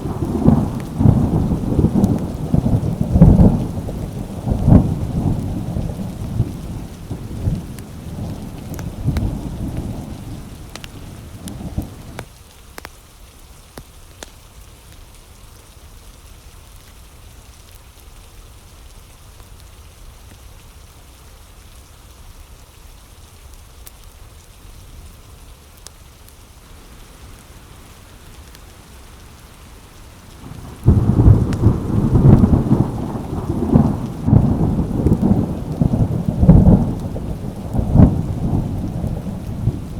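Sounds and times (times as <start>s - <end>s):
rolling thunder: 0.0s - 12.2s, 26.7s - 39.9s
steady rain: 0.0s - 39.9s
faint ticks: 6.6s - 12.9s.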